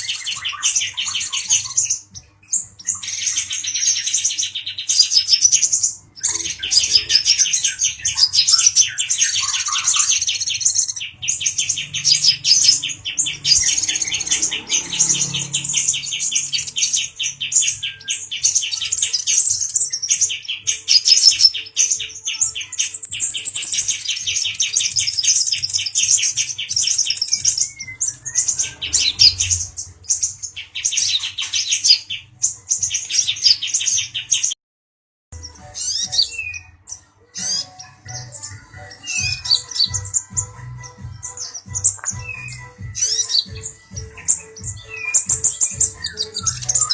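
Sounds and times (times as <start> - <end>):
sunbird singing fast trills: 0.0 - 22.0.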